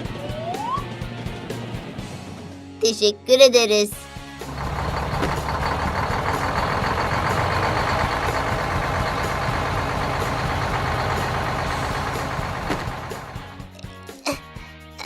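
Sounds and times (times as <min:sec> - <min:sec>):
vehicle engine rumble: 0:04.4 - 0:13.7.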